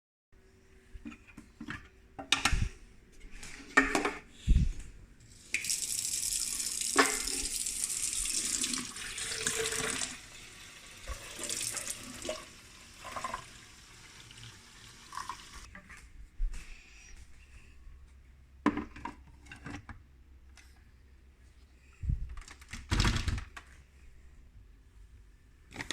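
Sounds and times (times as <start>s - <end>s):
water running from a tap: 5.4s - 15.7s.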